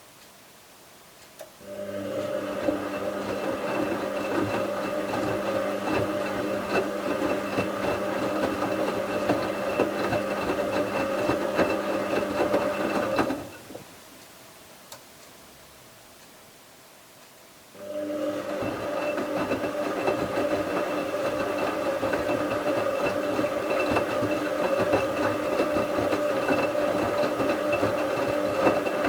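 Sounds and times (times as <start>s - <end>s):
washing machine motor humming: 1.6s - 13.7s, 17.8s - 29.0s
laundry knocking and clicking in drum: 2.2s - 13.8s, 18.4s - 29.0s.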